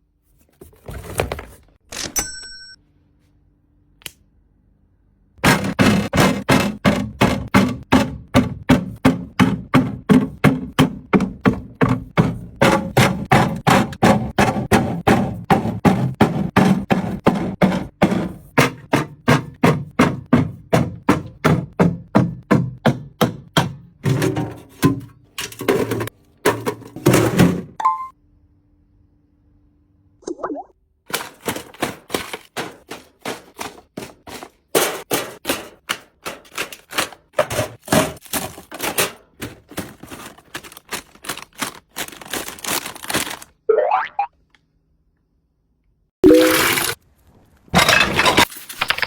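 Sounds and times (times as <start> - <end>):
rapid even knocks: 5.4 - 23.8.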